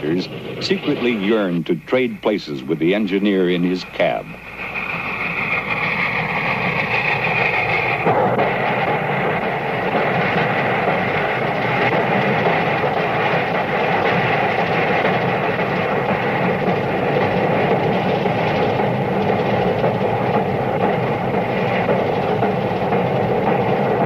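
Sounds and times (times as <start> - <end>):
high steady tone: 0.0 - 14.0
steam train rumbling: 0.0 - 24.0.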